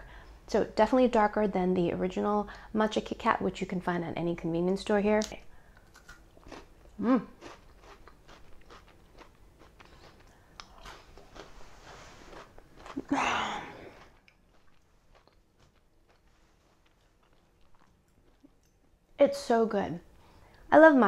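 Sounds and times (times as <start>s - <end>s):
crunchy wafer chewing: 5.7s - 11.7s, 12.3s - 19.0s.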